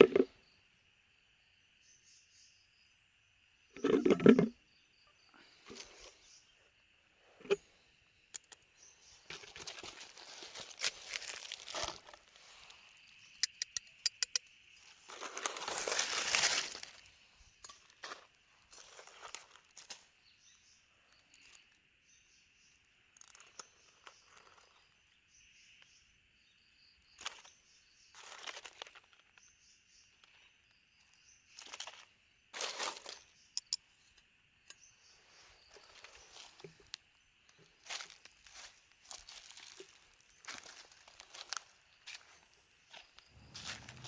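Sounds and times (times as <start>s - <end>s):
dry vegetation crunching and rustling: 9.0s - 12.8s, 15.0s - 17.1s, 17.9s - 20.0s, 27.2s - 29.4s, 31.5s - 33.3s, 37.6s - 44.0s
sharp clicks: 13.3s - 14.5s.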